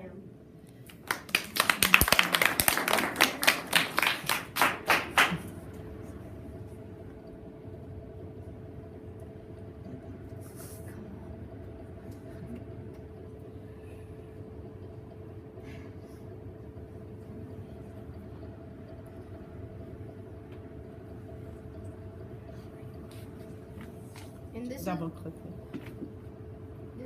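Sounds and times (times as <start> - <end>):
faint steady hum: 0.0 - 27.0
people clapping: 0.7 - 5.7.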